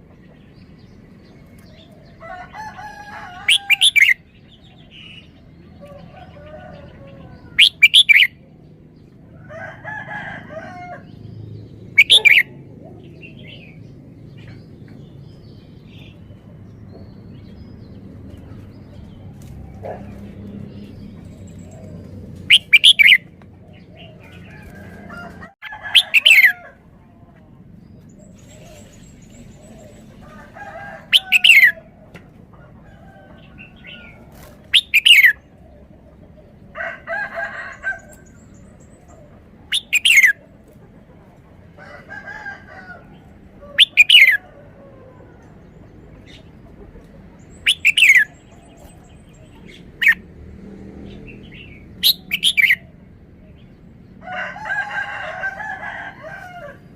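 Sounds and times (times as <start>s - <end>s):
bird singing: 0.0s - 9.2s, 10.7s - 24.7s, 27.7s - 31.8s, 33.0s - 36.0s, 37.8s - 40.4s, 43.6s - 50.2s, 51.1s - 54.0s
bird warbling: 7.6s - 8.3s, 12.0s - 12.5s, 22.5s - 23.2s.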